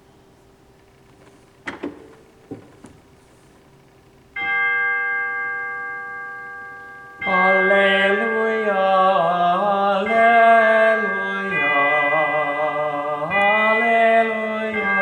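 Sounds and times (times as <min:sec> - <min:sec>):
organ console clicks: 0:00.8 - 0:03.3
organ chime note ringing: 0:04.3 - 0:15.0.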